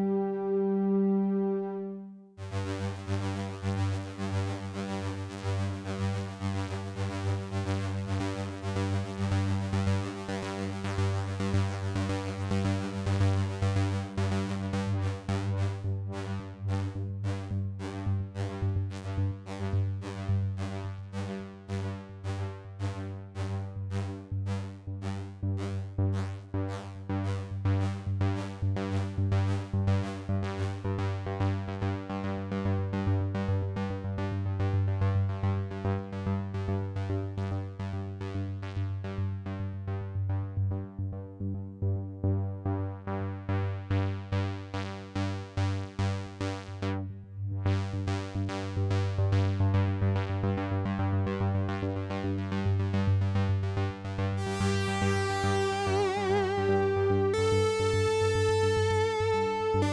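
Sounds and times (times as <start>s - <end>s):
synthesizer arpeggio: 0.0s - 2.2s, 54.4s - 59.9s
sustained synth bass note: 54.4s - 59.9s
wavering high synth note: 54.4s - 59.9s.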